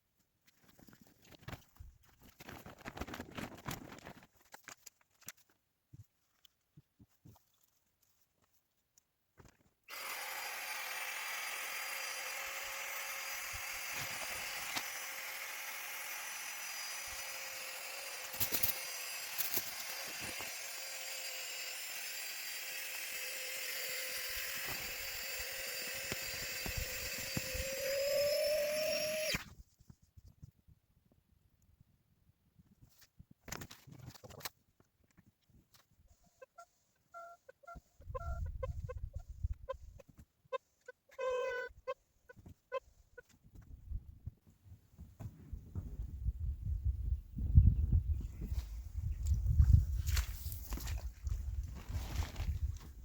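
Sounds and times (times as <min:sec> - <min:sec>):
electric air pump running: 0:09.9 - 0:29.4.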